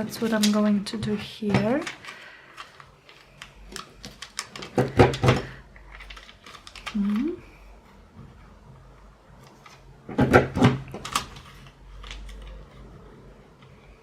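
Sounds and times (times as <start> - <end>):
person humming: 6.9 - 7.5
paper punch clicks and crunches: 9.4 - 12.6.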